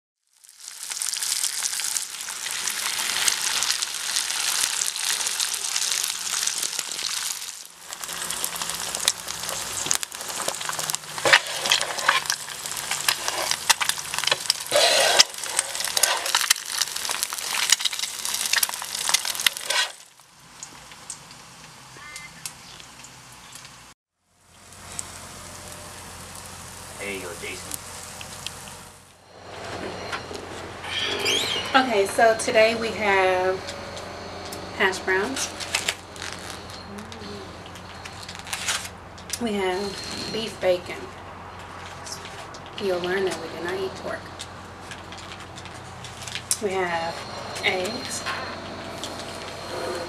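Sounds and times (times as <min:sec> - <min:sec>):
bacon and eggs sizzling on griddle: 0:00.2 - 0:29.2
sharp popping crackles: 0:00.3 - 0:29.2, 0:33.8 - 0:40.5.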